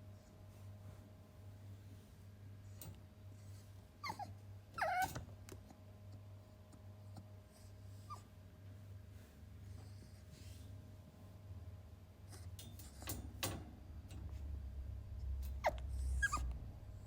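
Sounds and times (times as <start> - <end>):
puppy whining: 4.0 - 5.5, 7.9 - 8.4, 15.4 - 17.0.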